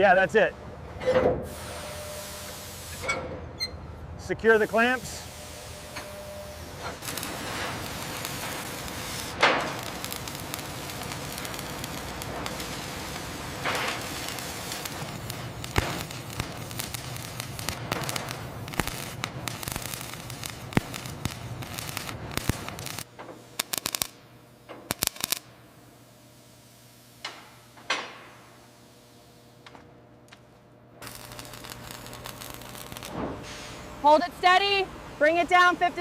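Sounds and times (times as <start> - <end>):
crackling hiss: 6.7 - 24.2, 24.8 - 25.5, 31.0 - 33.8.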